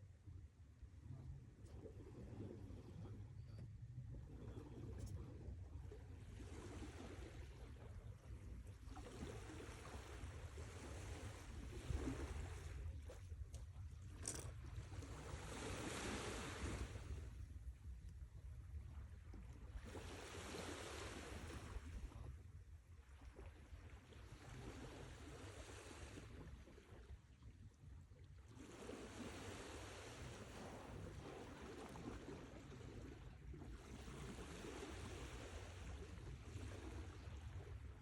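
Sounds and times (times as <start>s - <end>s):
sea waves washing in: 15.0s - 17.5s, 19.8s - 22.1s, 28.6s - 37.9s.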